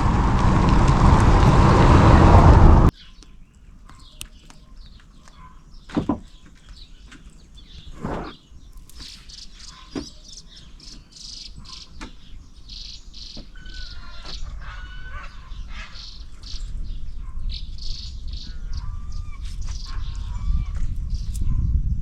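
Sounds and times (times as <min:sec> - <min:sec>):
low rumble: 0:00.0 - 0:02.9
birds chirping: 0:00.0 - 0:21.6.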